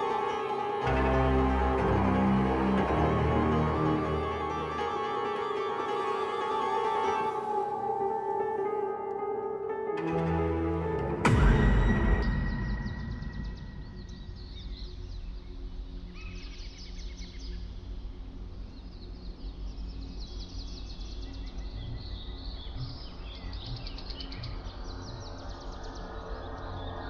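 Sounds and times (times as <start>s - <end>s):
small birds chirping: 12.5s - 27.0s.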